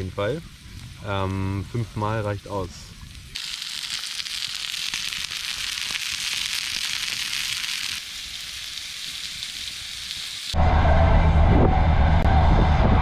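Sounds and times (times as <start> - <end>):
food sizzling in a pan: 0.0 - 10.6
low rumble: 10.6 - 13.0.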